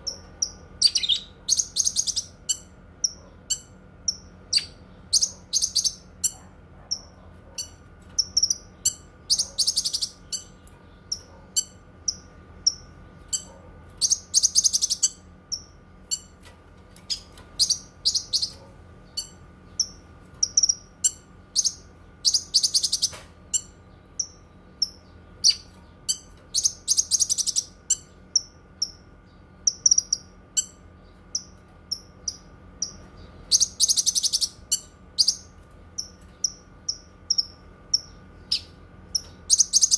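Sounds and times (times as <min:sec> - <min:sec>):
faint steady hum: 0:00.0 - 0:39.9
bird singing high chirps: 0:00.1 - 0:06.4, 0:32.3 - 0:39.9.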